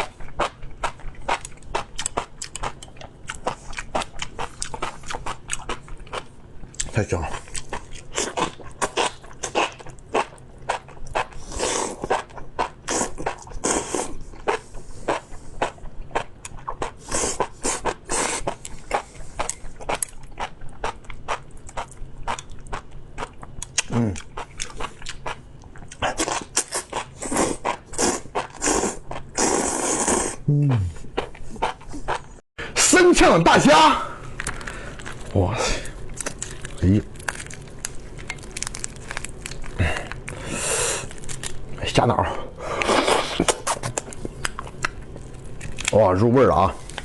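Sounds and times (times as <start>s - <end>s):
wet crunchy chewing: 34.4s - 40.4s.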